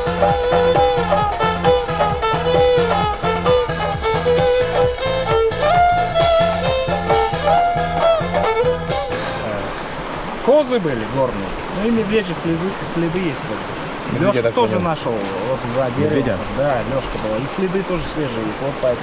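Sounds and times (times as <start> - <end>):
bouncing bass line: 0.0 - 9.6
upbeat swing music: 0.0 - 9.6
brass-like melody: 0.0 - 9.7.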